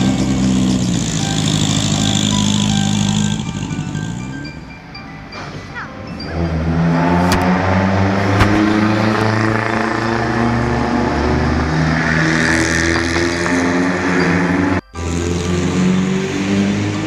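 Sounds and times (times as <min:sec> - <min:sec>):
car engine at low revs: 0:00.0 - 0:04.6.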